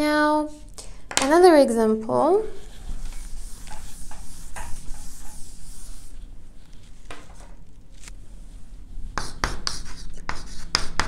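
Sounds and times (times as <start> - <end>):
low electrical hum: 0.0 - 11.0
writing strokes on a board: 2.6 - 6.2, 9.1 - 11.0.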